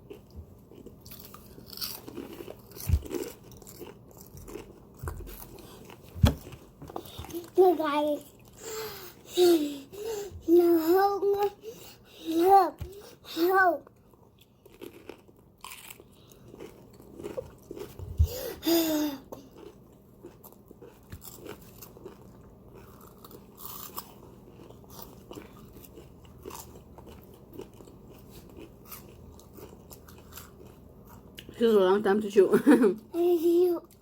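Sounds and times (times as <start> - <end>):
crunchy food chewing: 0.0 - 7.6, 13.9 - 18.1, 19.4 - 31.5.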